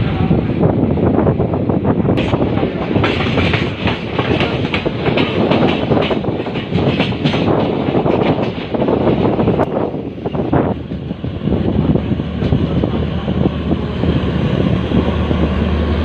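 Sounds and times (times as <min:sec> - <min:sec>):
train rumbling on rails: 0:00.0 - 0:16.0
wheels clattering over track: 0:02.2 - 0:09.6.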